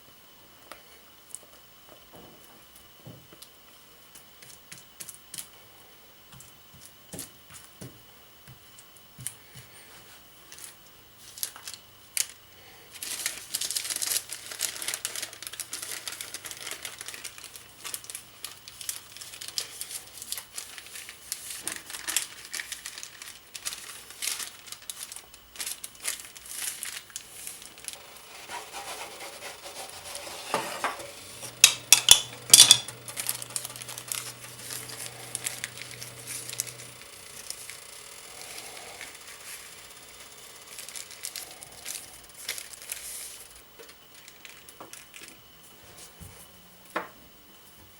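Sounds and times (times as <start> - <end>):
crinkling and crackling: 13.0 - 28.5, 30.1 - 46.1.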